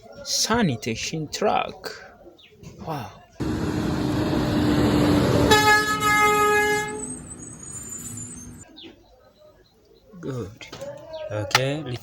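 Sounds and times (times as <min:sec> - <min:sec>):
long horn honk: 0:03.4 - 0:08.6
truck engine rumble: 0:03.4 - 0:08.6.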